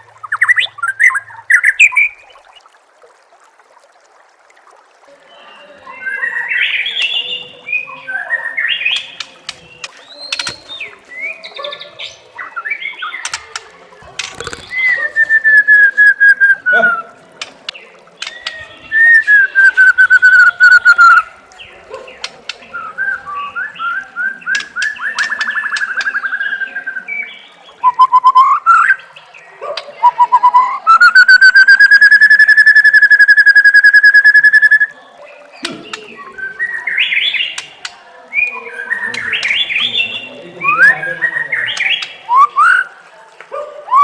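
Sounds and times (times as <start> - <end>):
bird singing whistles and clicks: 8.8 - 11.3, 17.4 - 21.2, 22.2 - 26.8, 27.8 - 29.0, 29.8 - 34.9, 35.6 - 39.9, 41.7 - 42.9.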